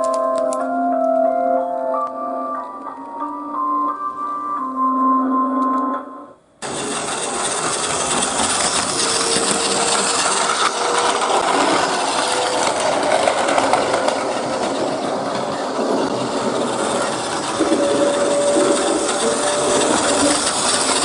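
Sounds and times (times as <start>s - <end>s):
train running: 6.6s - 21.0s.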